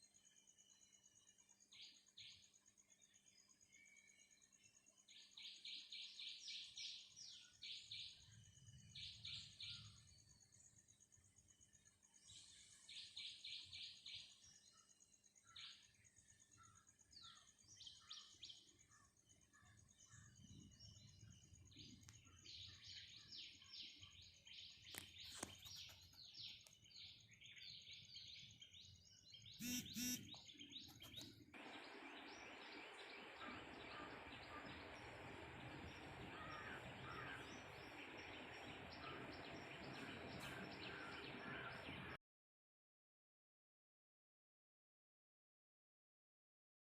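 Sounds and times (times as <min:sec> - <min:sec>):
small birds chirping: 0:00.0 - 0:42.2
loud bird call: 0:29.6 - 0:42.2.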